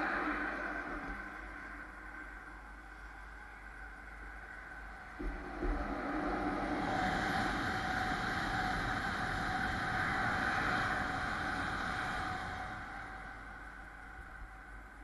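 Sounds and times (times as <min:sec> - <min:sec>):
rush of train wheels and air: 0:05.1 - 0:15.0.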